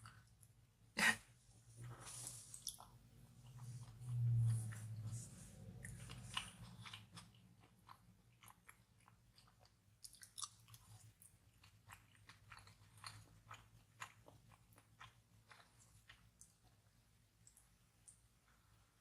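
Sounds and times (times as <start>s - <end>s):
faint low hum: 0.0s - 19.0s
close-up chewing: 2.0s - 18.2s.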